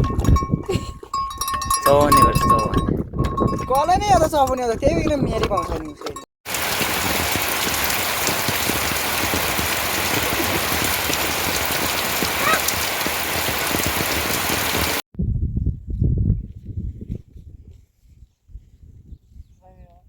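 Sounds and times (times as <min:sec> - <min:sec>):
heavy rain falling: 0:06.5 - 0:15.0.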